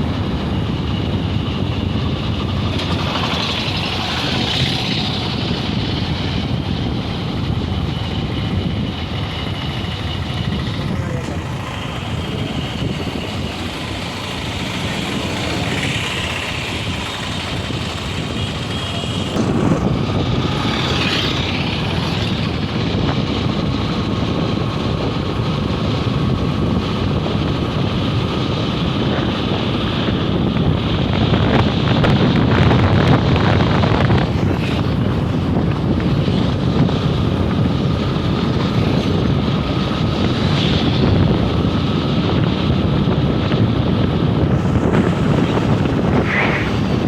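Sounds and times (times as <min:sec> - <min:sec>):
road vehicles rumbling: 0:00.0 - 0:47.0
wind buffeting microphone: 0:00.0 - 0:47.0.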